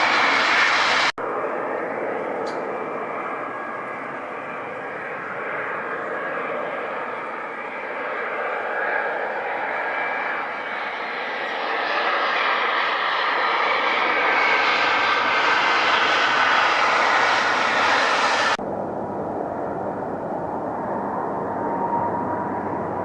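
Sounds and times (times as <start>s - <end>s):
airplane engine whine: 0.0s - 23.0s.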